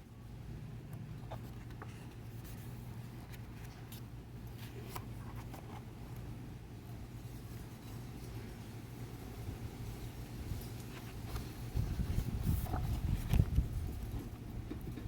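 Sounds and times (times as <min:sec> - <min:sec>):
book pages turning: 0:01.2 - 0:06.3, 0:10.8 - 0:14.3.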